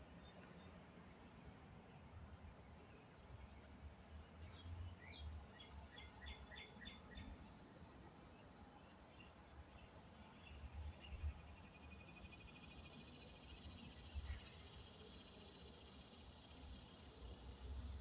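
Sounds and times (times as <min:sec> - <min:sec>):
songbird chirping: 0:00.0 - 0:07.5
insect trill: 0:10.3 - 0:18.0.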